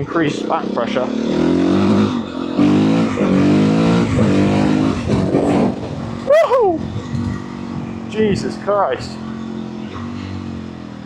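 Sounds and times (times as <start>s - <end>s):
motorcycle engine accelerating: 0.0s - 11.0s
wind noise: 3.2s - 8.5s.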